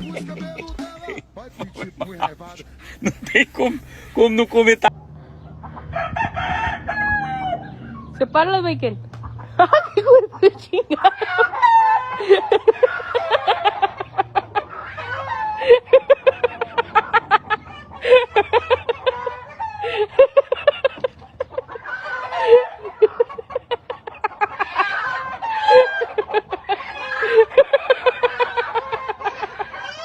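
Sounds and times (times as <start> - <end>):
animal rising and falling cries: 5.6 - 8.2, 9.3 - 30.0.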